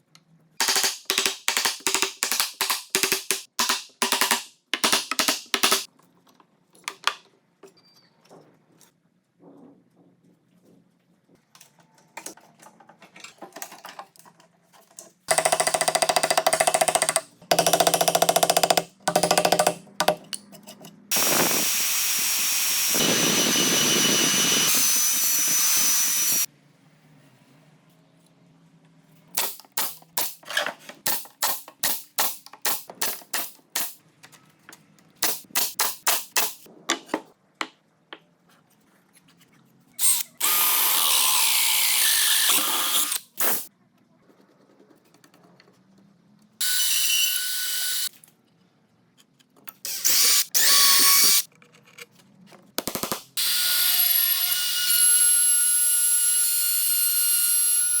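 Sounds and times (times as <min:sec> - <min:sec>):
power tool motor: 0:21.1 - 0:26.5.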